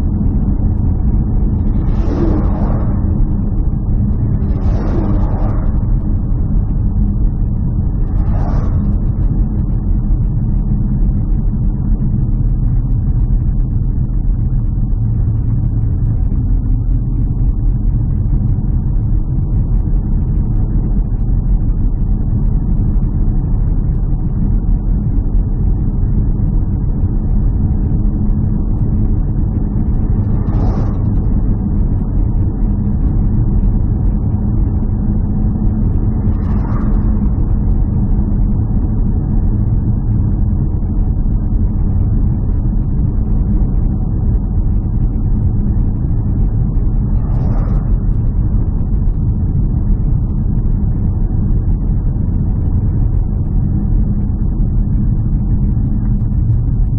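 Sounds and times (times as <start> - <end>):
vehicle rumbling: 0.0 - 12.3, 27.9 - 54.0.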